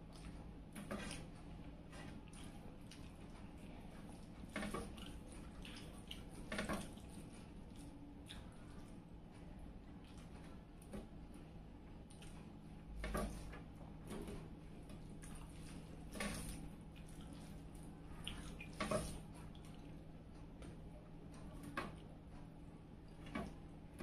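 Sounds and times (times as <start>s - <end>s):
person chewing: 4.1s - 9.0s.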